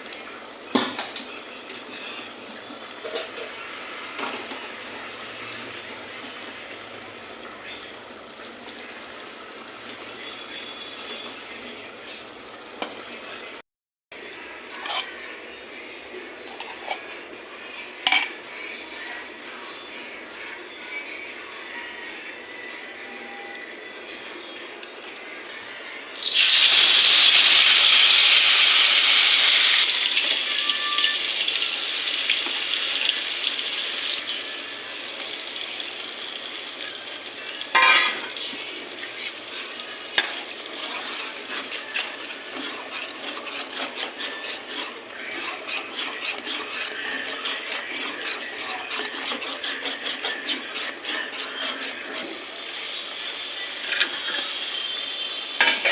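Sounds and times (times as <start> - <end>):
spoon scraping a pan: 14.7 - 15.2, 16.5 - 17.2, 18.0 - 18.4, 30.1 - 31.3, 37.7 - 52.6, 53.8 - 55.0
food sizzling in hot oil: 26.2 - 38.4.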